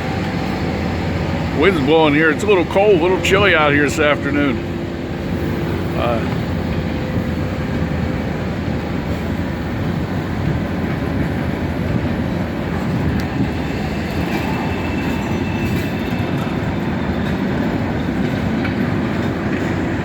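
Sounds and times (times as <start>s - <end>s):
high squeal of train wheels: 0.0s - 20.0s
train wheels rumbling on rails: 0.0s - 20.0s
wind on microphone: 4.7s - 20.0s.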